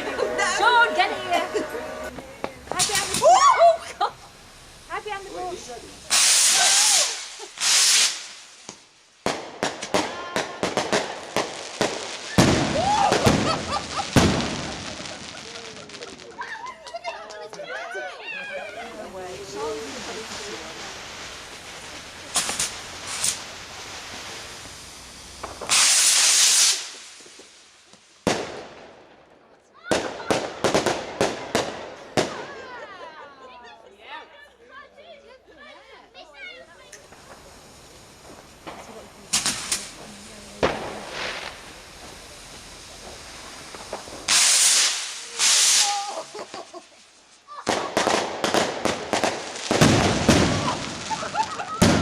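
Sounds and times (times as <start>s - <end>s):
rocket launching with rushing hiss: 1.6s - 16.6s, 18.4s - 29.3s, 36.4s - 52.0s
sharp bangs and cracks: 25.3s - 29.0s, 38.2s - 42.2s, 42.9s - 46.7s, 47.7s - 52.0s.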